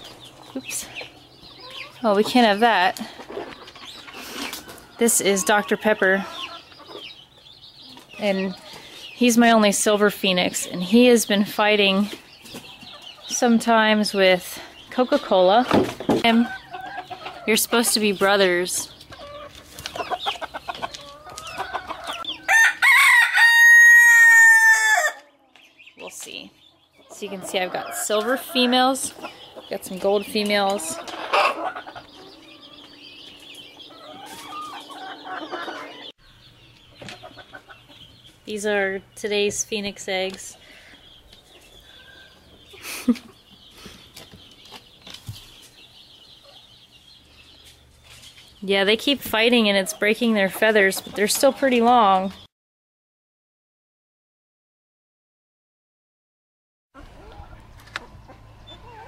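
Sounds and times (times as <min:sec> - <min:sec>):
birds chirping: 0:00.0 - 0:52.5, 0:57.0 - 0:59.0
chickens clucking: 0:00.0 - 0:52.5, 0:57.0 - 0:59.0
rooster crowing: 0:22.4 - 0:25.3.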